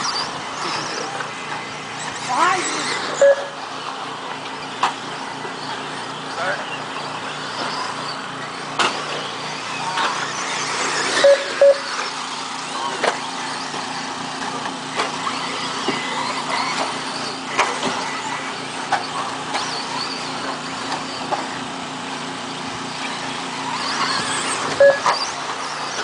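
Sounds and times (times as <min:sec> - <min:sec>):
electric motors whining: 0:00.0 - 0:26.0
clicks and knocks from landings: 0:08.7 - 0:10.7, 0:12.6 - 0:21.6.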